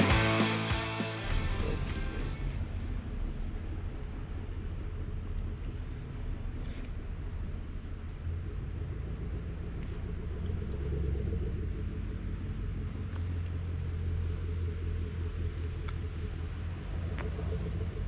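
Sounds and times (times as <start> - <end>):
motorcycle engine cruising: 0.0 - 3.0.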